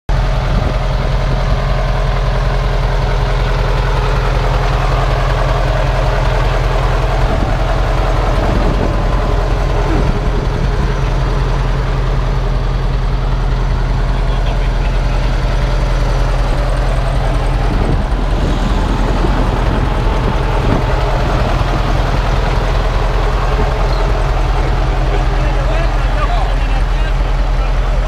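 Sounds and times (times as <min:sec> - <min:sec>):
truck engine idling: 0:00.1 - 0:28.0.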